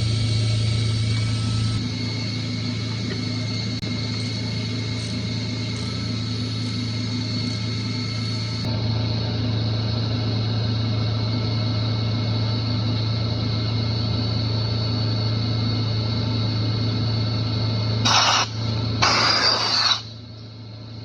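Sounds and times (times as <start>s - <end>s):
high-pitched whine tones: 0.0s - 20.7s
chiller machinery hum: 0.0s - 21.0s
hiss-like noise burst: 18.0s - 20.2s.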